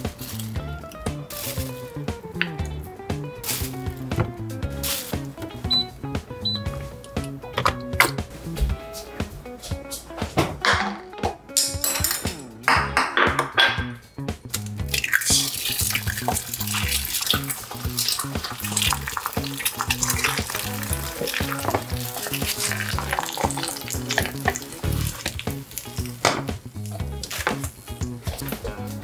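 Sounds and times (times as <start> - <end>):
background music: 0.0 - 29.0
food sizzling in a pan: 15.0 - 28.7.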